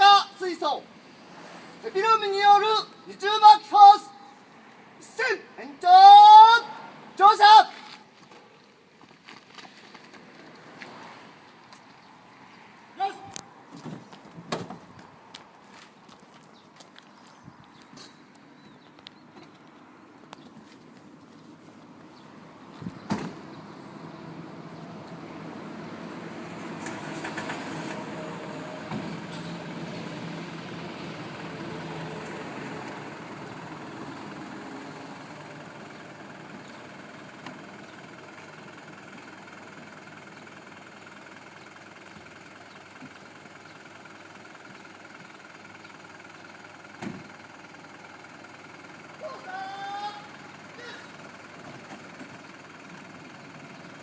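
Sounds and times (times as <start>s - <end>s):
fire truck engine running: 21.0s - 54.0s.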